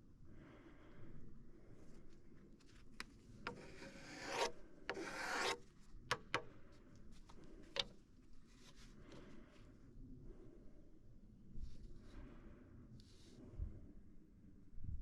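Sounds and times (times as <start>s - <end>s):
wood scraping on wood: 3.0s - 6.5s, 7.3s - 8.0s.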